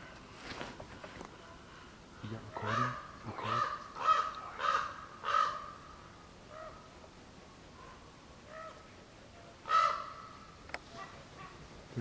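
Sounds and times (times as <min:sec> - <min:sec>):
crows cawing: 0:02.6 - 0:06.9, 0:09.6 - 0:10.6.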